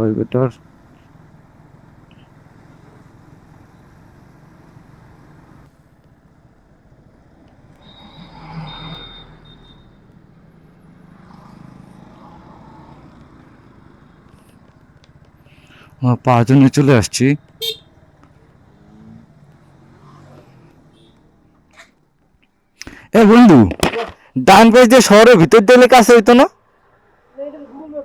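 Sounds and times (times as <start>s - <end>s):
motorbike engine hum: 0.0s - 22.7s
road noise: 0.0s - 28.0s
thin high whine: 7.8s - 10.0s.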